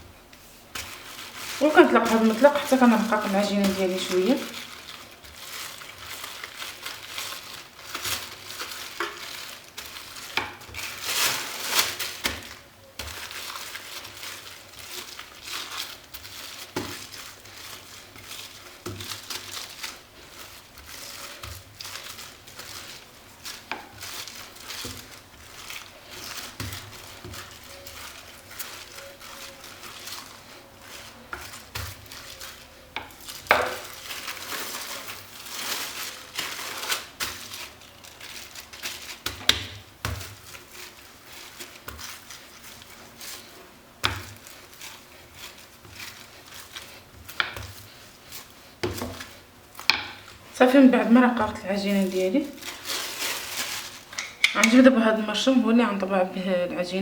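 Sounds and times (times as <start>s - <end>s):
plastic bag crinkling: 0.2s - 57.0s
rolling pin over dough: 0.3s - 56.2s.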